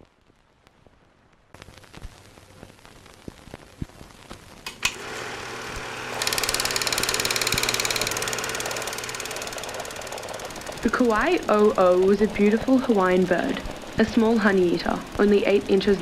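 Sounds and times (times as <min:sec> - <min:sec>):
sharp click: 0:04.6 - 0:05.2
faint machine clicks: 0:04.6 - 0:16.0
mechanical clatter of rapid ticks: 0:04.6 - 0:16.0.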